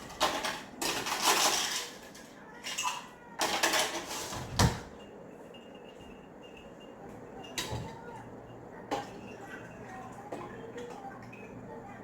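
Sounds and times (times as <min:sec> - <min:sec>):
tableware clattering and scraping: 0:00.0 - 0:08.0.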